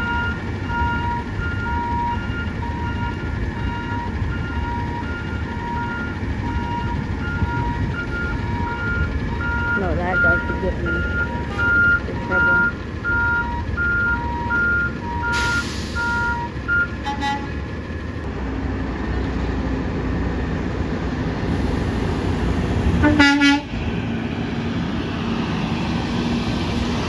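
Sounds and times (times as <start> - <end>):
truck backup alarm beeping: 0.0 - 18.0
diesel engine rumble: 0.0 - 27.0
truck horn: 10.1 - 13.4, 15.2 - 17.7, 23.0 - 23.8.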